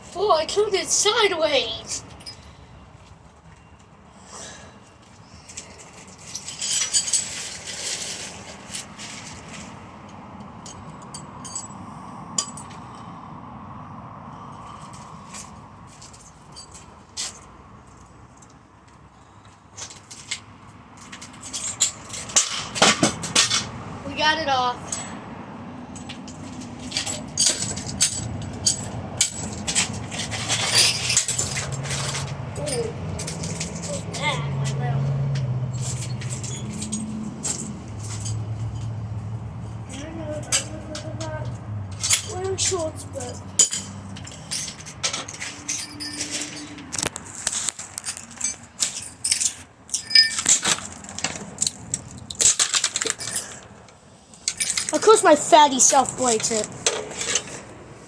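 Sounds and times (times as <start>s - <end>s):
fan parts knocking and clicking: 18.5s - 23.8s, 25.9s - 57.9s.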